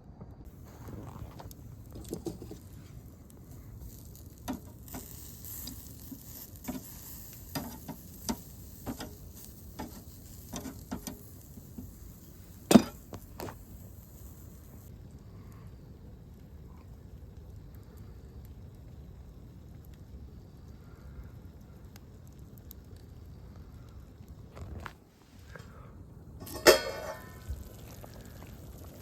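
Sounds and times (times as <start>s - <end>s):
food sizzling in a pan: 0.5s - 14.9s, 26.4s - 29.0s.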